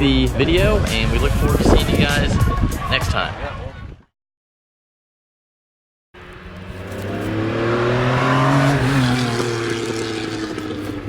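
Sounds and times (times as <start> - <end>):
car engine revving: 6.2 - 11.0.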